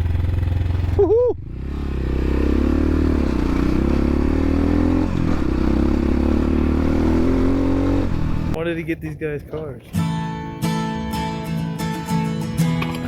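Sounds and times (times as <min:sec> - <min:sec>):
dirt bike engine pulling away: 0:00.0 - 0:08.6
person shouting woohoo: 0:01.0 - 0:01.4.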